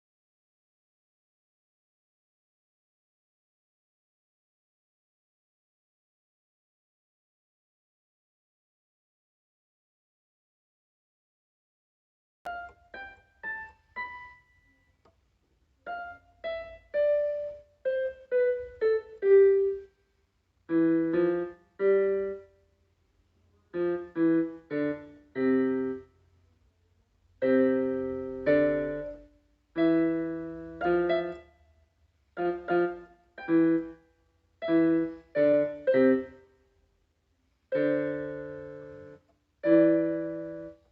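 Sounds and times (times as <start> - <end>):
solo piano playing slowly: 12.5 - 14.9, 15.8 - 19.9, 20.7 - 22.6, 23.7 - 26.1, 27.4 - 31.6, 32.3 - 34.0, 34.6 - 36.5, 37.7 - 40.9.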